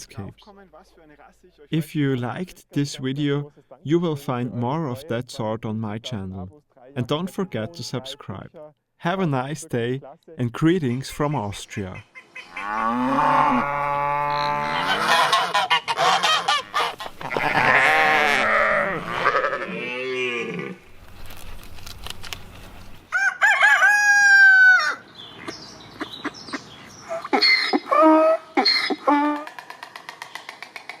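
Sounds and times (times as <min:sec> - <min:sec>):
farm animal calls: 0:10.6 - 0:20.8, 0:24.2 - 0:30.7
hens clucking: 0:10.8 - 0:19.7
rooster crowing: 0:23.1 - 0:25.0.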